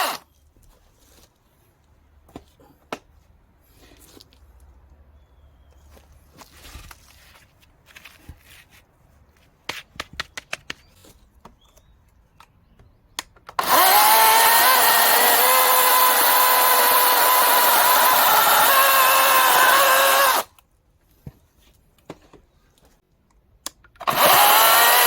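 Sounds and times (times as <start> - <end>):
electric chainsaw whine: 0.0 - 0.2, 13.6 - 20.5, 24.0 - 25.0.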